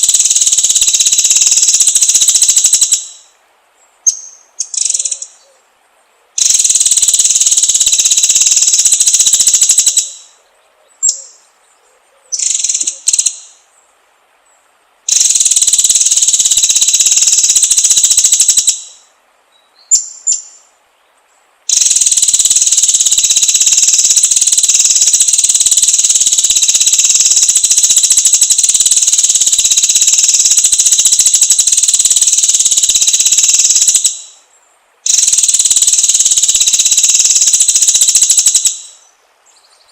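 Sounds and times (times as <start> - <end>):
buzzy bird trills: 0.0 - 3.3, 4.0 - 5.6, 6.4 - 10.4, 12.3 - 13.6, 15.1 - 19.1, 21.7 - 34.4, 35.0 - 39.1
high chirped bird phrases: 0.0 - 3.3, 4.0 - 5.6, 6.4 - 13.6, 21.7 - 34.4, 35.0 - 39.9.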